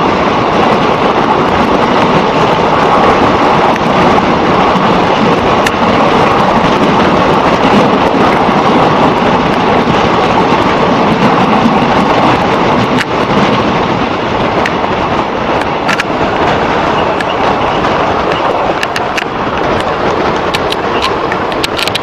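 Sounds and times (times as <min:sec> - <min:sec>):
wheels rumbling on track: 0:00.0 - 0:22.0
sharp clicks: 0:18.2 - 0:22.0.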